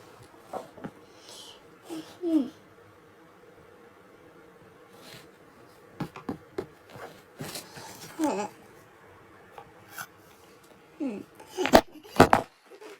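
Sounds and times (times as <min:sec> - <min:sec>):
faint voice: 0:11.0 - 0:11.7.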